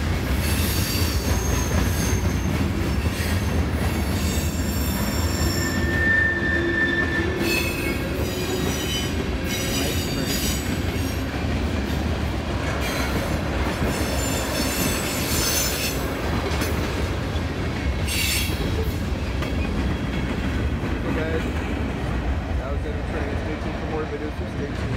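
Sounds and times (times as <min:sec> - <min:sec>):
freight train rolling past: 0:00.0 - 0:24.9
metallic wheel squeals: 0:04.2 - 0:10.6.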